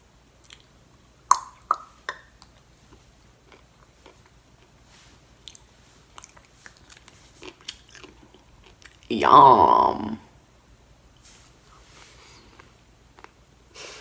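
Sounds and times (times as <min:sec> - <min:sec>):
faint chewing clicks: 0:00.4 - 0:00.7, 0:05.4 - 0:09.1, 0:12.5 - 0:13.4.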